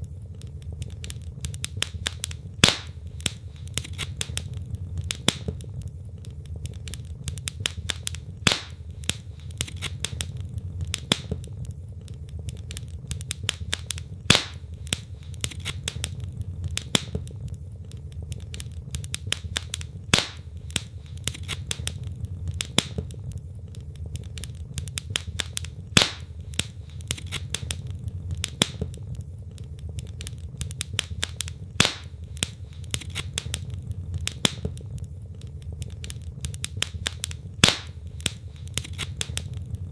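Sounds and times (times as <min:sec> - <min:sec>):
logs crackling and popping: 0:00.0 - 0:39.9
low rumble of flames: 0:00.0 - 0:39.9.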